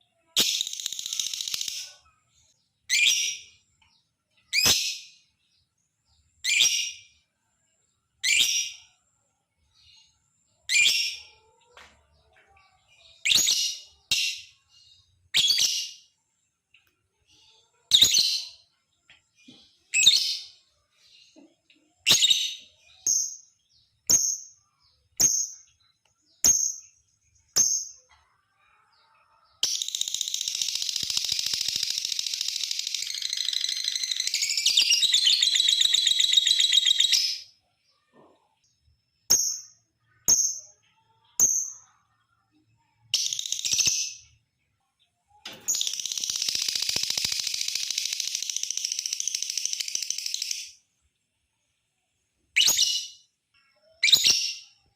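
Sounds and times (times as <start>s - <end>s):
lovebird chirping and chattering: 0.1s - 3.7s, 4.3s - 7.2s, 8.1s - 9.0s, 9.7s - 11.5s, 12.7s - 16.1s, 17.3s - 18.8s, 19.8s - 38.5s, 39.2s - 44.4s, 45.4s - 50.8s, 52.5s - 54.9s.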